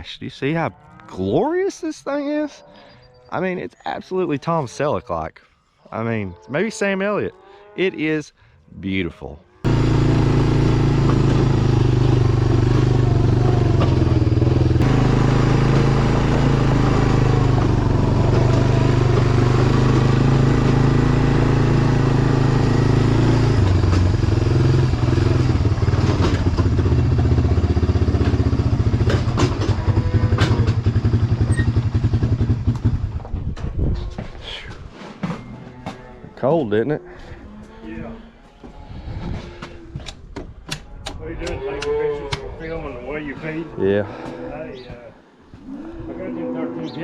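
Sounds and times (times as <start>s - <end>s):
vehicle engine running: 9.7s - 33.3s.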